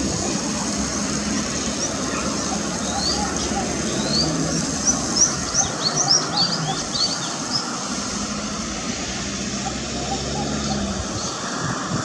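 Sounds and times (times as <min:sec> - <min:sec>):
low engine hum: 0:00.0 - 0:12.0
high bird chirps: 0:02.8 - 0:07.9.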